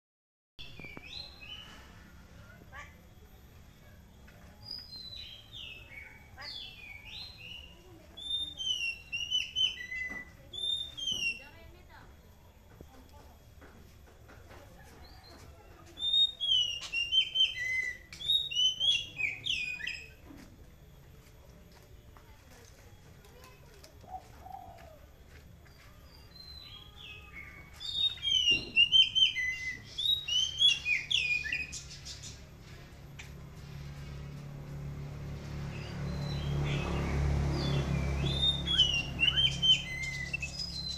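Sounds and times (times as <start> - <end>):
whistled bird-like song: 4.6 - 11.5, 16.0 - 20.2, 26.2 - 32.4, 35.8 - 40.9.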